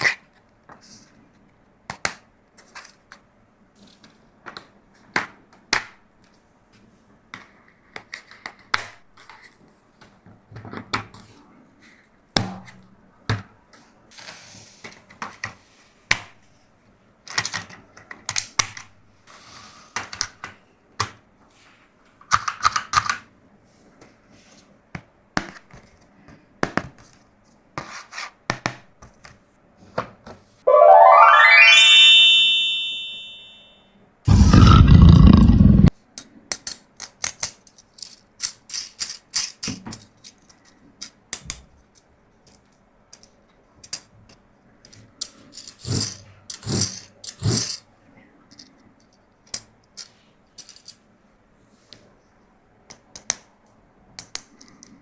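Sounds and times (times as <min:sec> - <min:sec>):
hard plastic toys clicking: 0:36.5 - 0:41.5.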